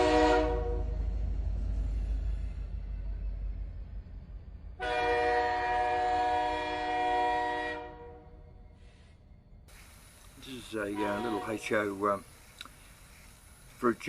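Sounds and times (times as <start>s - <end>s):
train horn chord: 0.0s - 1.1s, 4.8s - 8.5s, 10.8s - 11.9s
low rumble: 0.0s - 6.4s.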